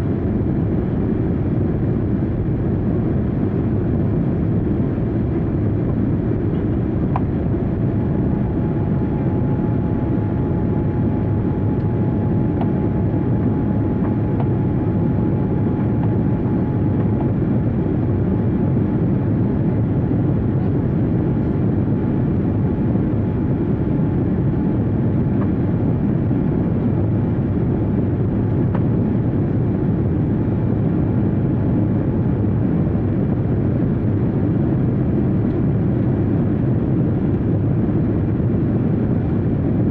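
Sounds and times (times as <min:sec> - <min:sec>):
jet airliner cabin drone: 0:00.0 - 0:39.9.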